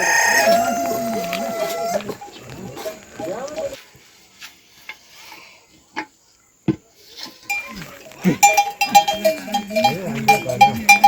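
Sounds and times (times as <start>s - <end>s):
goats bleating: 0.0s - 2.3s
goat bells clanking: 0.0s - 3.8s, 7.5s - 11.0s.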